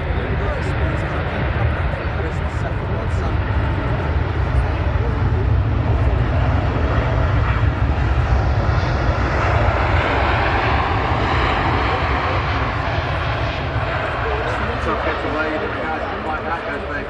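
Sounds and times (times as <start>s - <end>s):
airliner engines roaring: 0.0s - 17.0s.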